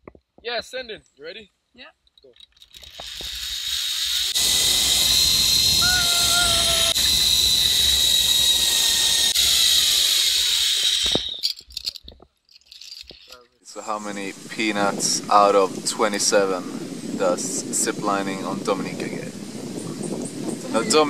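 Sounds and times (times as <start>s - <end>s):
zipline pulleys whining on cable: 2.8s - 11.6s
rushing wind: 3.1s - 11.4s, 13.7s - 21.0s.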